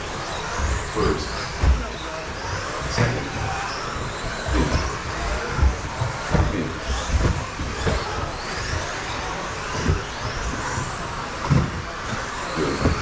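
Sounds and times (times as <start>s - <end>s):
electric rc motors whining: 0.0s - 13.0s
short low thuds: 2.8s - 8.9s.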